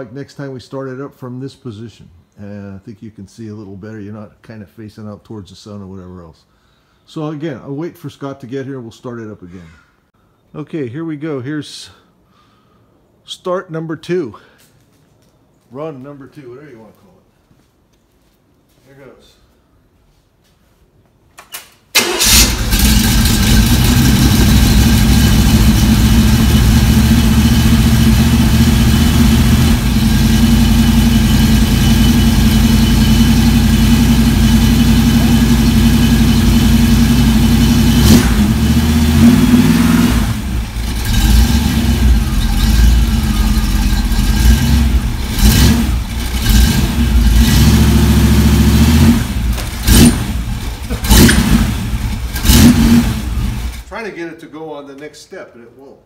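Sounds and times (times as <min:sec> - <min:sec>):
engine idling and revving: 0:22.2 - 0:53.9.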